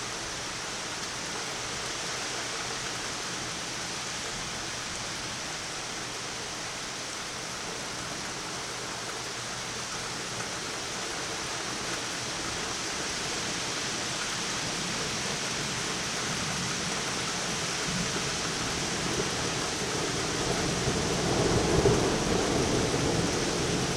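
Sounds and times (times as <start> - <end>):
heavy rain falling: 0.0 - 23.9
thunder rumbling: 20.0 - 23.9.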